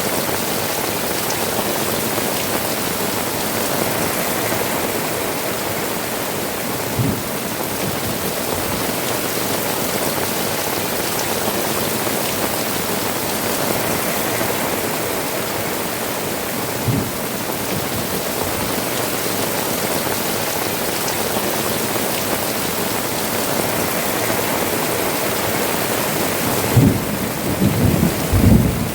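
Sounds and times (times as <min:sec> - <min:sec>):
water dripping from eaves: 0:00.0 - 0:05.2
heavy rain on tiled roofs: 0:00.0 - 0:28.9
low thumps: 0:07.0 - 0:07.3.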